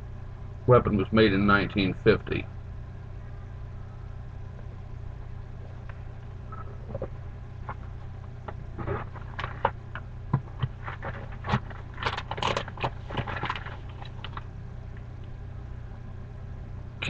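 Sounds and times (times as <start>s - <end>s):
steady low hum: 0.0s - 17.0s
handling clicks and scrapes: 7.7s - 14.5s.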